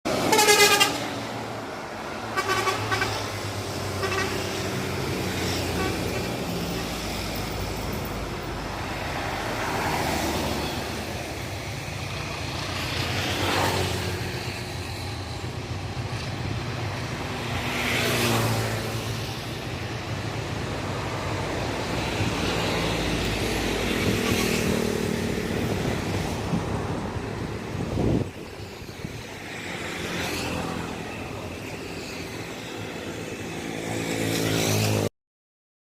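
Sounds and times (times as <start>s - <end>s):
low traffic rumble: 0.1s - 35.1s
vehicles passing by: 0.1s - 35.1s
vehicle horn tooting: 0.2s - 1.1s, 2.4s - 3.2s, 4.0s - 4.5s.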